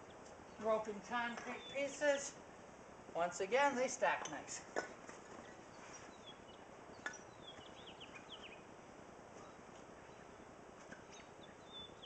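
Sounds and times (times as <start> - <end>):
outdoor background hiss: 0.0 - 12.0
faint bird chirps: 5.2 - 8.7, 9.4 - 12.0.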